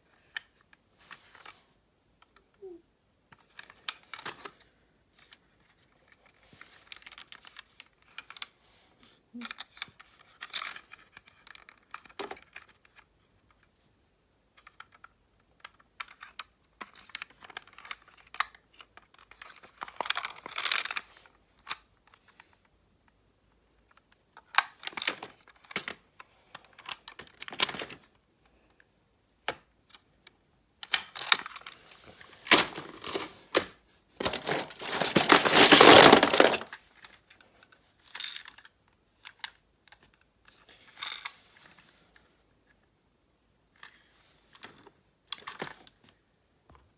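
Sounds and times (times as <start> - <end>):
rustling handling noises: 31.1 - 36.8.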